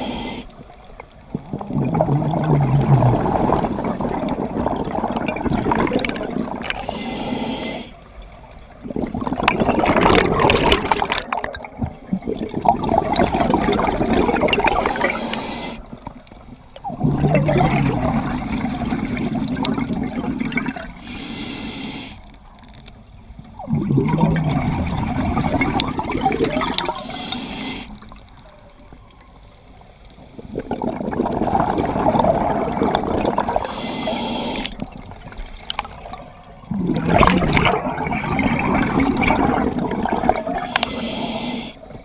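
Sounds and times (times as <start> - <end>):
diver breathing through regulator: 0.0 - 0.6, 2.9 - 4.3, 6.6 - 8.1, 14.6 - 16.0, 21.0 - 22.3, 26.8 - 28.1, 33.5 - 35.0, 40.5 - 42.0
exhaled bubbles rushing: 1.2 - 6.9, 8.6 - 21.0, 23.6 - 27.2, 30.4 - 33.8, 34.6 - 40.9.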